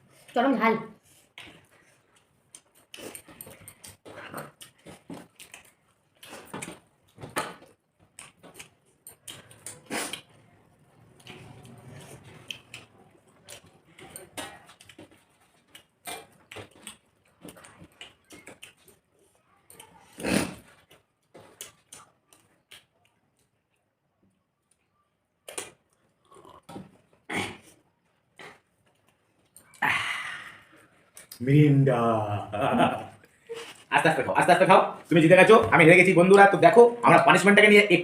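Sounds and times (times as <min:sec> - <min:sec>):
chewing and lip smacking: 0:01.1 - 0:29.9, 0:30.5 - 0:31.4.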